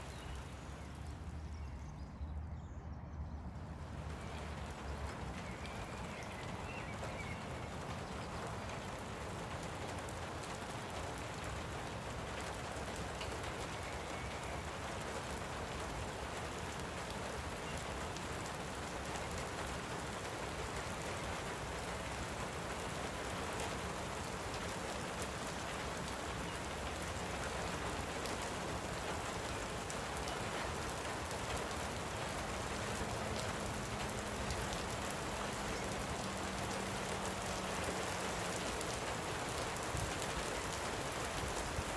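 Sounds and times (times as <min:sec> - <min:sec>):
faint bird chirping: 0:00.0 - 0:11.0, 0:12.4 - 0:36.8
light rain pattering: 0:00.0 - 0:41.9.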